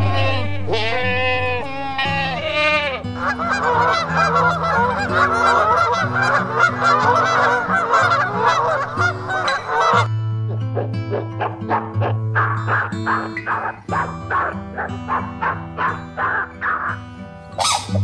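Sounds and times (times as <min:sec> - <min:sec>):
geese honking: 0:00.0 - 0:10.1, 0:10.8 - 0:17.0, 0:17.6 - 0:18.0.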